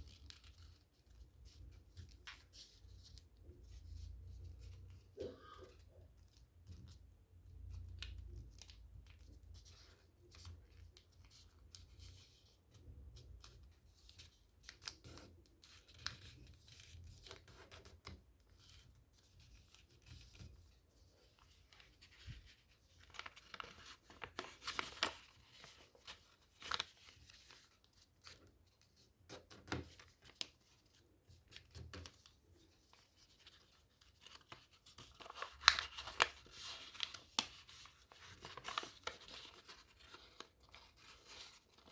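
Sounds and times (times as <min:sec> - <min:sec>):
paper being folded and creased: 0:00.0 - 0:05.1, 0:07.9 - 0:41.9
paper crinkling: 0:19.4 - 0:41.9.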